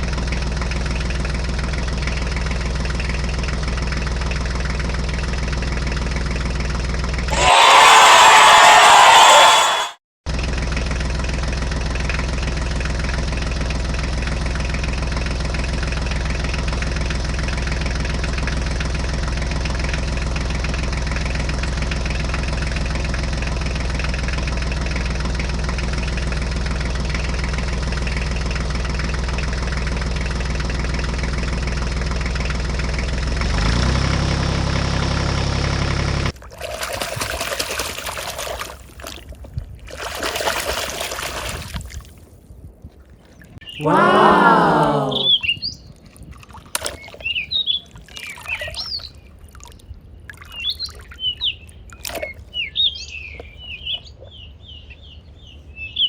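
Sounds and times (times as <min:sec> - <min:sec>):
engine running: 0:00.0 - 0:36.4.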